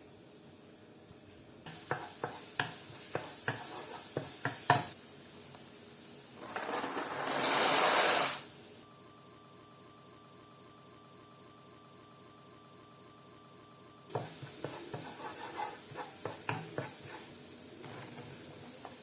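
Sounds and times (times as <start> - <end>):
pan sizzling: 1.7 - 5.0, 5.8 - 8.8, 14.1 - 19.0.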